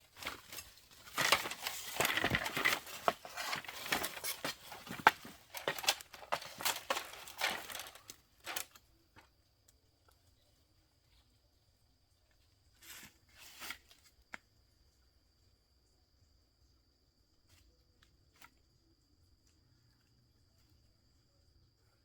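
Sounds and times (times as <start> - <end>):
dry material rustling and crunching: 0.0 - 8.8.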